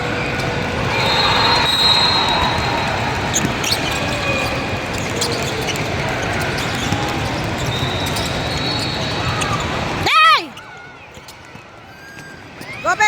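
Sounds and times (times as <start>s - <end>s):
gym background noise: 0.0s - 13.0s
short high squeaks: 0.9s - 9.9s
basketball bouncing on court: 1.0s - 10.0s.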